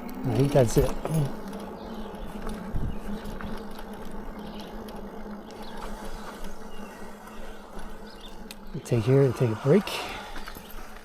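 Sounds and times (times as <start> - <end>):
electric motor whir: 0.0 - 11.0.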